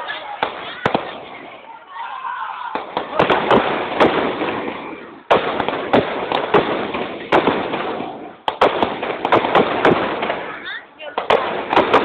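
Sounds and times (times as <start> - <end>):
fireworks popping: 0.0 - 1.8, 2.7 - 12.0
loud firework booms: 2.7 - 12.0.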